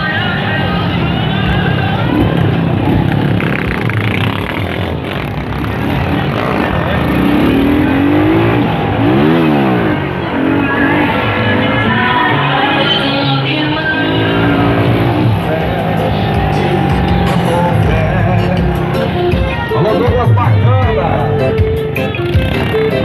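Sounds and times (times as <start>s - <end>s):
vehicle engine revving: 0.0s - 23.0s.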